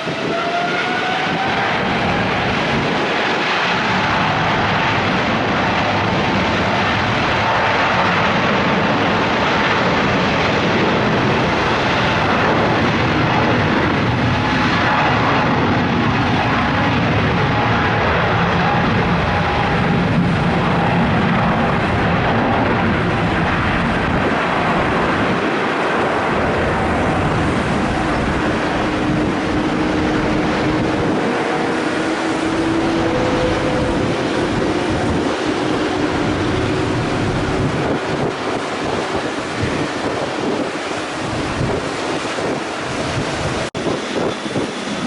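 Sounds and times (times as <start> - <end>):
jet engines roaring: 0.0 - 45.0
wind buffeting the microphone: 0.0 - 45.0.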